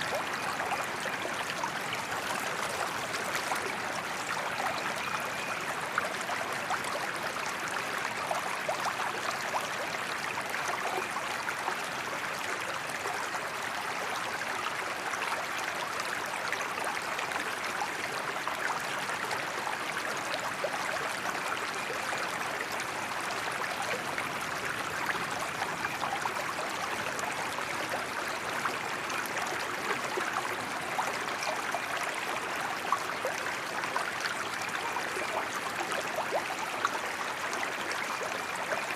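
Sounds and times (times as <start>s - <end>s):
small water splashes: 0.0s - 6.8s.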